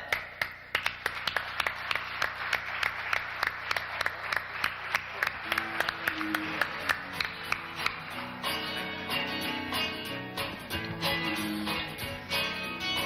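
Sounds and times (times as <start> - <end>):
audience applauding: 0.0 - 8.5
acoustic guitar playing: 5.4 - 13.0.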